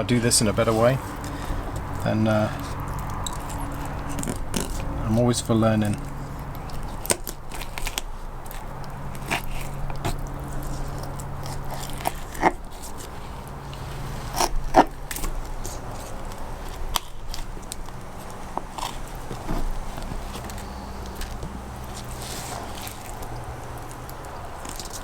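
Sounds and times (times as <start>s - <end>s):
loud crunching strokes: 0.0s - 25.0s
knife cutting fish flesh and bones: 5.6s - 25.0s.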